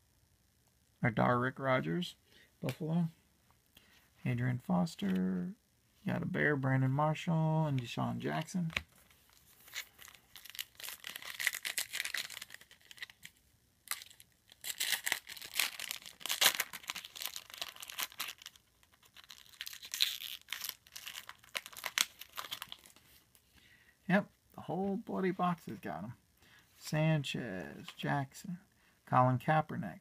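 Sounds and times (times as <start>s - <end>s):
foil wrapper tearing and crinkling: 9.5s - 23.0s.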